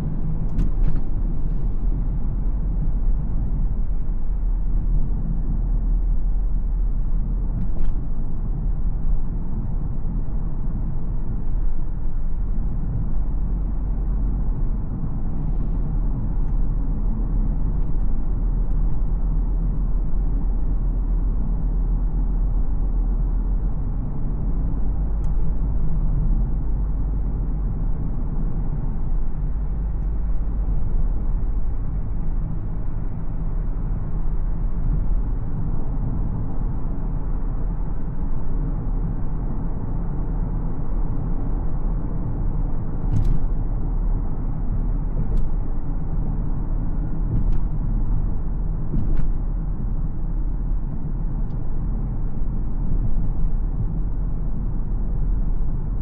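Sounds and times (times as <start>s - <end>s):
car engine rumble while driving: 0.0s - 56.0s.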